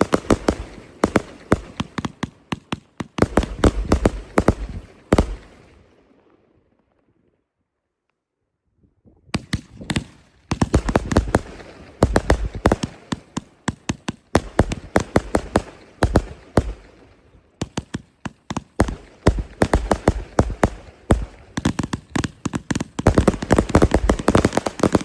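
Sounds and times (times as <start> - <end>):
deep fireworks booms: 0.0 - 5.7, 9.5 - 25.0
fireworks bangs and crackling: 0.0 - 5.7, 9.4 - 25.0.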